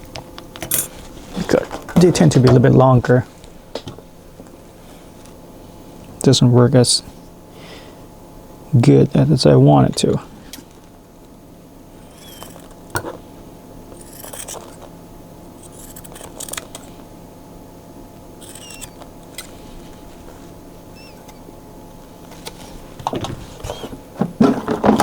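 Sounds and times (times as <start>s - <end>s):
scissors snipping: 14.0s - 14.9s, 15.6s - 17.0s, 18.4s - 19.6s.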